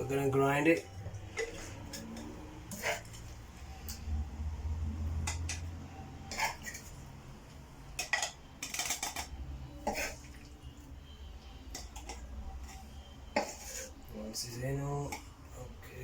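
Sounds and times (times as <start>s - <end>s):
metal spoon scraping a pan: 1.2s - 4.1s, 5.0s - 7.2s, 7.9s - 10.4s, 11.7s - 15.4s.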